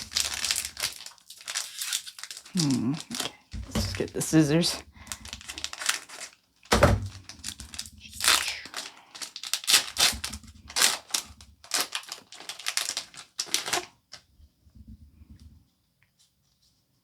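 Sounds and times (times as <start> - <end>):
scissors cutting foil wrapper: 0.0 - 6.4, 7.2 - 13.9
foil wrapper crinkling: 0.0 - 14.2.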